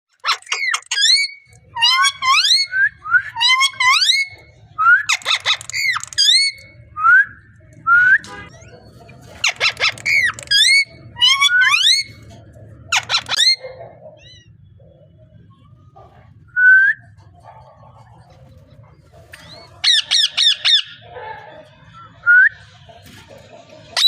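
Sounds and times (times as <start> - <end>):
harsh parrot calls: 0.2 - 6.8, 8.5 - 14.6, 19.4 - 22.2.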